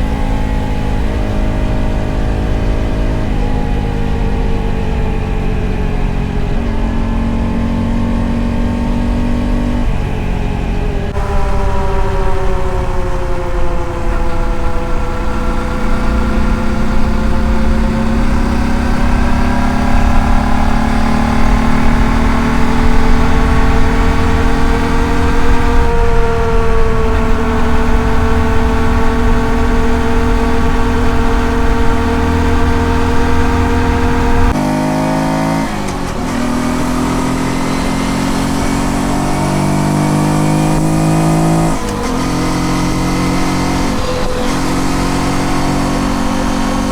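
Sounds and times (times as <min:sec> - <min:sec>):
wind rumble on microphone: 0:00.0 - 0:34.6
motorcycle engine running: 0:00.0 - 0:46.9.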